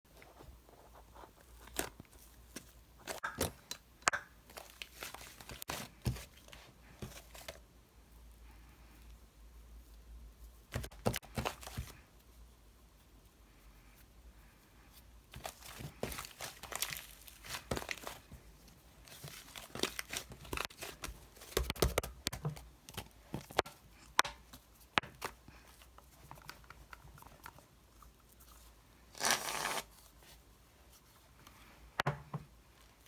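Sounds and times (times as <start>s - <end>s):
crinkling and rustling: 0.1s - 3.8s, 4.4s - 7.7s, 10.5s - 12.0s, 15.3s - 31.8s.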